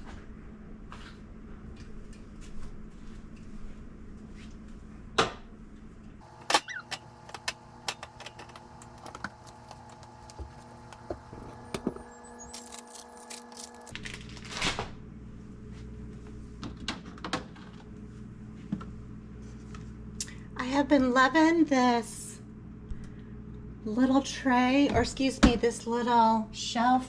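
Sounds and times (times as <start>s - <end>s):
electrical hum: 0.0s - 27.0s
jars and containers clinking: 6.3s - 13.9s.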